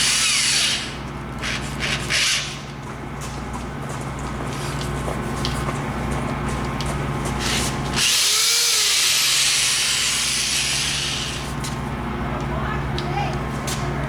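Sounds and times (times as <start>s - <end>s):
cordless drill boring into wood: 0.0s - 1.0s, 8.0s - 11.4s.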